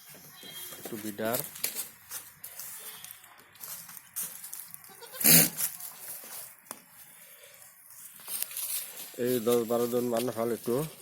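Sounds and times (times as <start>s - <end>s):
goat bleating: 4.8s - 5.6s.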